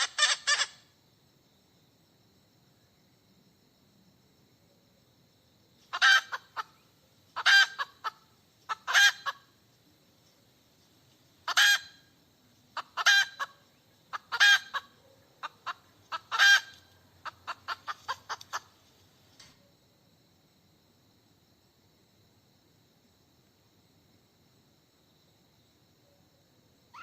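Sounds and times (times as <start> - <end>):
hen clucking: 0.0 - 0.7, 5.9 - 6.8, 7.4 - 9.4, 11.4 - 11.9, 12.8 - 18.8
hen cackling: 0.0 - 0.8, 5.9 - 6.8, 7.4 - 9.6, 11.4 - 12.1, 12.8 - 18.8.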